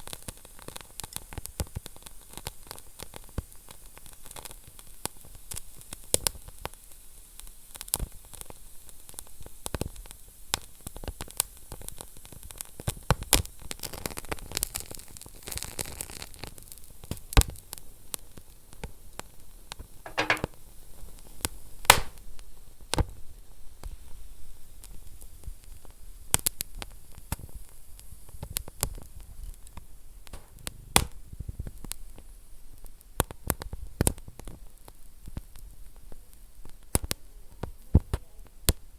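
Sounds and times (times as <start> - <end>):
fire sizzling: 21.8 - 22.3
wood fire crackling and popping: 21.9 - 22.2.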